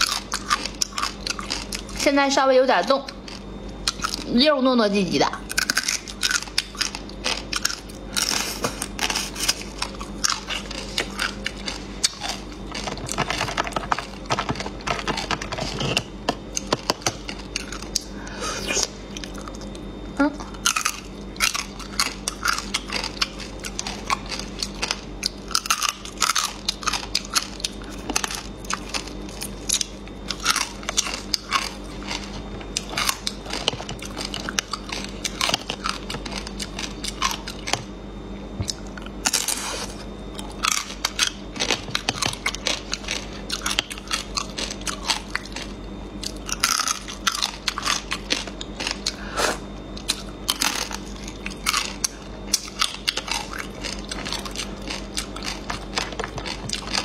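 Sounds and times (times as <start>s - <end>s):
crunchy chewing: 0.0s - 2.2s, 2.9s - 4.3s, 5.4s - 57.0s.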